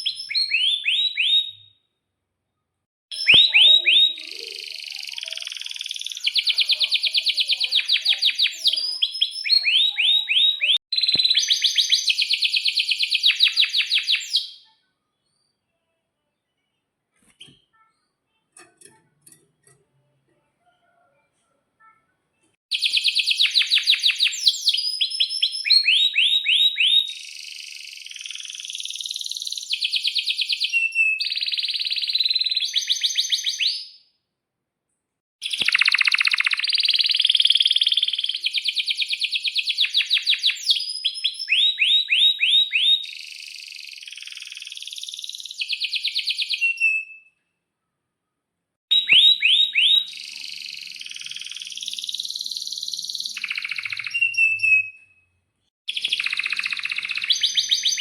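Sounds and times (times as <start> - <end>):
canary singing trills: 0.0 - 1.8, 3.1 - 14.8, 22.7 - 34.0, 35.4 - 47.3, 48.9 - 55.2, 55.9 - 58.0.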